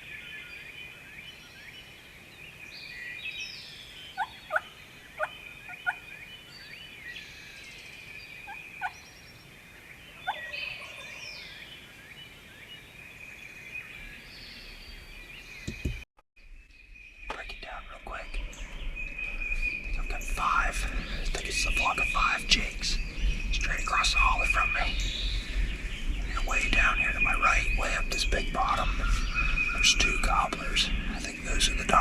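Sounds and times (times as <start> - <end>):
small birds singing: 0.0 - 32.0.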